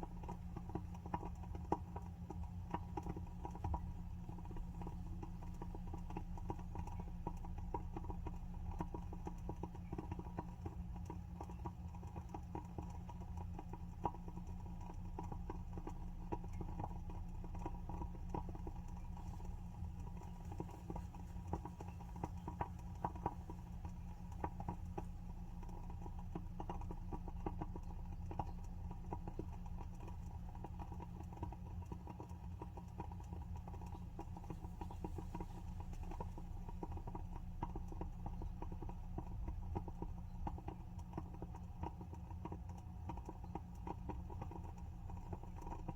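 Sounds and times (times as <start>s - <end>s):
low steady hum: 0.0s - 45.9s
candle wick crackling: 12.2s - 42.4s.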